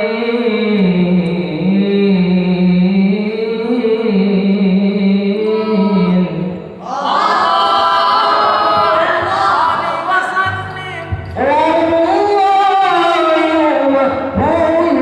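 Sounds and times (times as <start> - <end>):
voices singing unaccompanied chant: 5.2 - 13.6.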